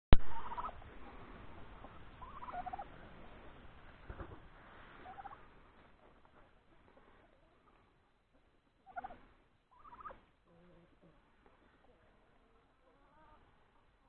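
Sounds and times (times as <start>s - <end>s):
turkeys gobbling: 0.3s - 4.2s, 4.8s - 5.6s, 8.8s - 12.1s.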